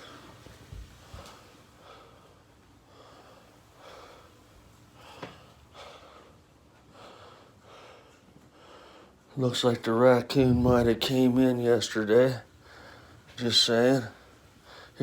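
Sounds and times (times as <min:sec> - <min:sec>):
person breathing heavily: 0:10.3 - 0:11.1.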